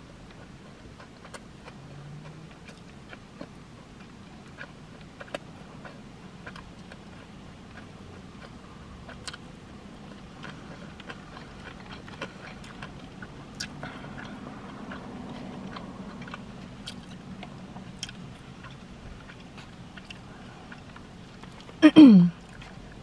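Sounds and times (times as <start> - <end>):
low steady hum: 0.0 - 23.0
person chewing food: 0.1 - 21.8, 22.4 - 23.0.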